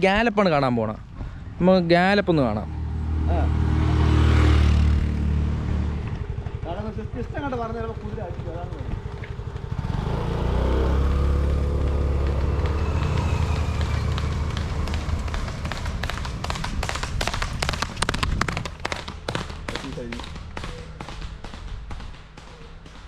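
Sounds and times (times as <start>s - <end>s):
motor engine humming: 2.7s - 21.0s
horse hoofbeats galloping: 6.0s - 23.0s.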